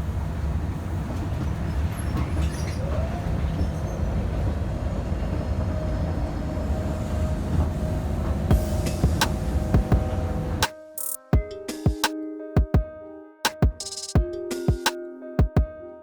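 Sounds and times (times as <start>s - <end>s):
train rumbling on rails: 0.0s - 10.6s.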